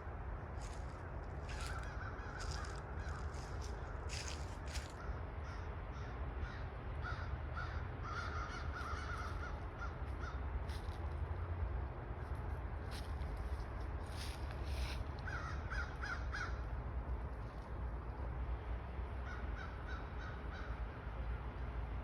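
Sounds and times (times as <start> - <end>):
birds giving harsh calls: 1.4 - 5.6, 6.4 - 10.4.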